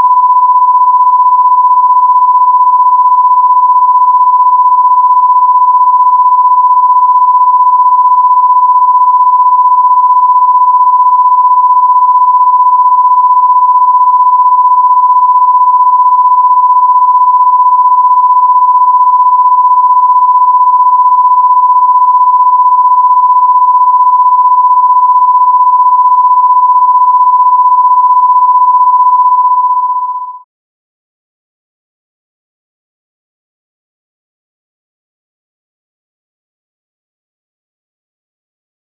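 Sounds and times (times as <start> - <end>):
high electronic sine tone: 0.0 - 30.5.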